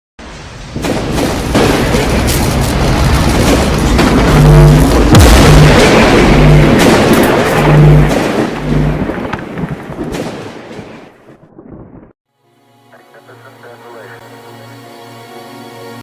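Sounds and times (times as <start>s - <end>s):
loud dense rumbling: 0.4s - 10.5s
sharp cracks: 0.8s - 12.2s
low pulsing tone: 4.0s - 9.1s.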